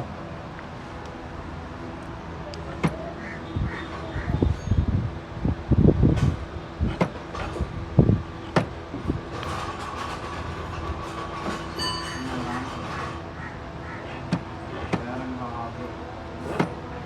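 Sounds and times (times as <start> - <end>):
high metallic squeal: 10.8 - 13.2.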